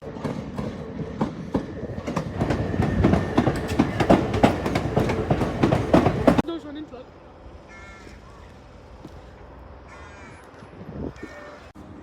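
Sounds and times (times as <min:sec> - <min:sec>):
train wheels clattering over joints: 0:00.0 - 0:06.4.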